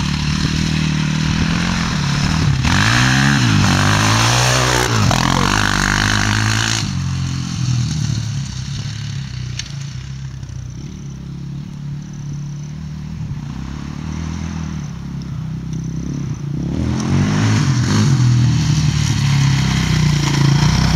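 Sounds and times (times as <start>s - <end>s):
quad engine revving: 0.0s - 11.0s, 16.1s - 20.9s.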